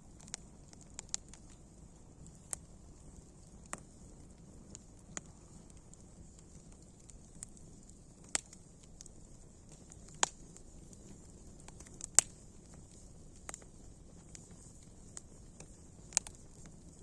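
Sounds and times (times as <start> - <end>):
campfire crackling: 0.0 - 17.0
sharp fire pops: 0.1 - 17.0.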